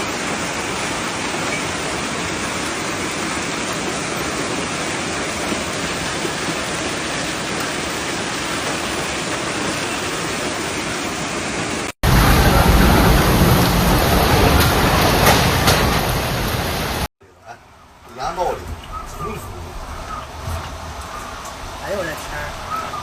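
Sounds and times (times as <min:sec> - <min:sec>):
heavy rain and hail: 0:00.0 - 0:17.1, 0:18.2 - 0:23.0
deep rush with sharp impacts: 0:12.0 - 0:17.1.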